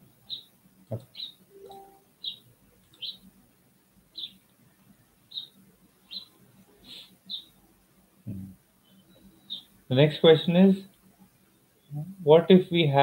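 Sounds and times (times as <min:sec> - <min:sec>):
bird chirping: 0:00.2 - 0:03.3, 0:04.1 - 0:04.4, 0:05.3 - 0:07.6, 0:08.3 - 0:10.6.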